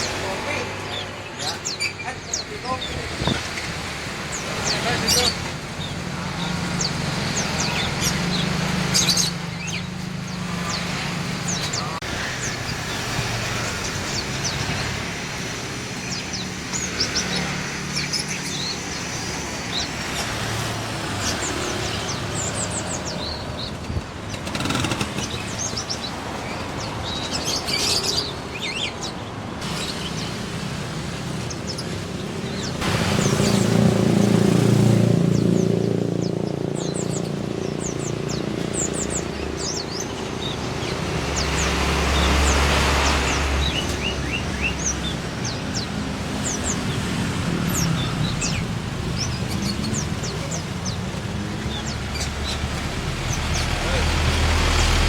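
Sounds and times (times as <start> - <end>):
road traffic: 0.0 - 55.0
songbirds chirping and twittering: 0.0 - 55.0.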